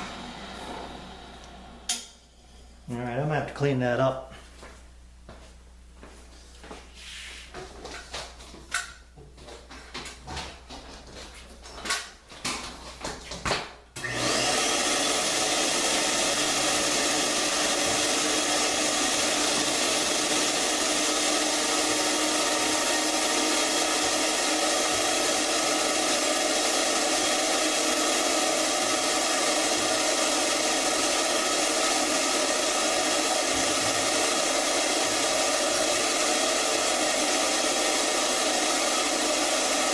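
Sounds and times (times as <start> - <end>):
electric motor running: 14.0 - 39.9.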